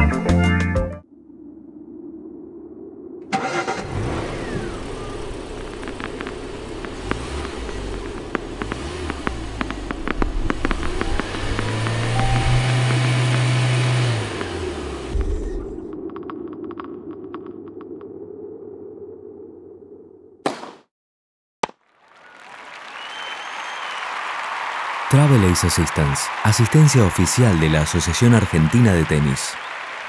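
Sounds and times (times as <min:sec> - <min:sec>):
car engine starting and running: 0:03.2 - 0:16.1.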